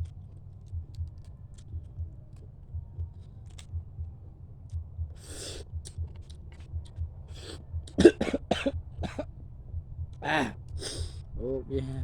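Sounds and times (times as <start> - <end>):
man coughing: 8.0 - 9.3, 10.2 - 10.6.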